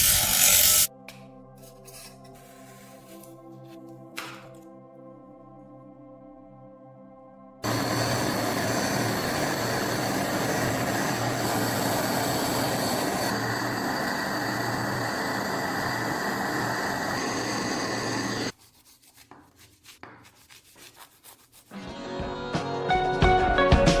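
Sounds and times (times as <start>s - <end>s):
power tool grinding metal: 7.7s - 18.5s.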